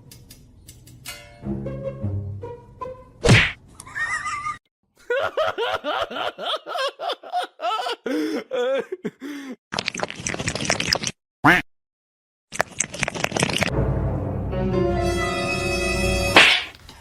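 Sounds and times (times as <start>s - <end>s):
person laughing: 3.8s - 9.6s.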